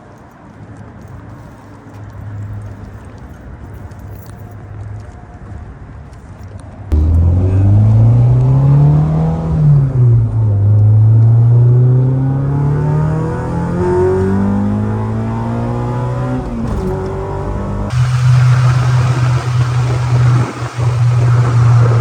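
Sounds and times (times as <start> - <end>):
car engine accelerating: 6.9 - 22.0.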